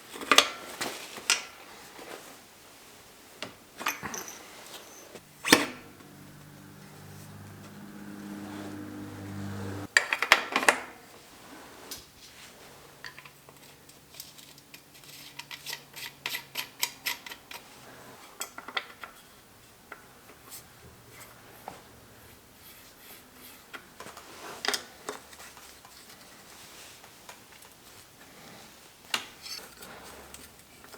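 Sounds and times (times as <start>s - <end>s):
metal tools clinking: 3.8s - 8.1s
steady low hum: 5.2s - 9.9s.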